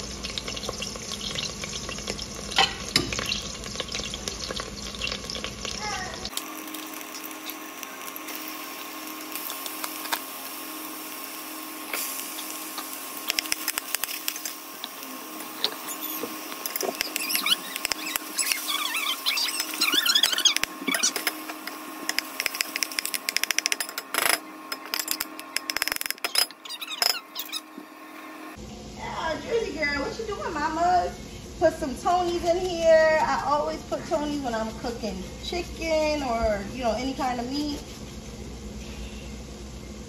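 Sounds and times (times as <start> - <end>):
vegetables sizzling in oil: 0.0 - 25.8
meat crackling and popping: 0.0 - 26.9
high squeaks: 15.6 - 21.3, 23.9 - 27.8.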